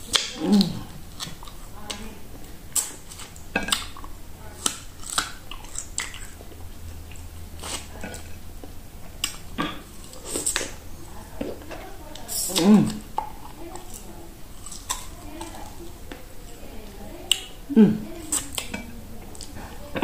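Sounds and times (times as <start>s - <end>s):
bone cracking and crunching: 0.0s - 10.8s, 11.4s - 16.7s
person chewing meat off bone: 0.0s - 16.6s, 17.3s - 19.6s.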